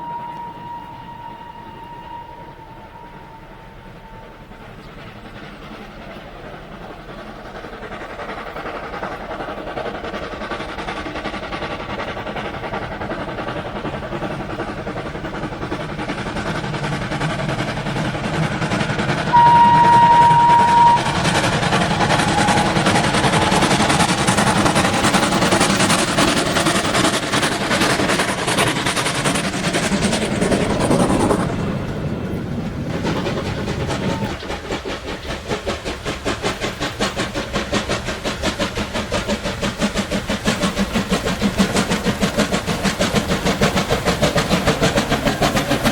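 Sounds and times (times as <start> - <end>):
high-pitched train warning blast: 0.0 - 4.8, 19.2 - 26.5
train passing: 0.0 - 45.9.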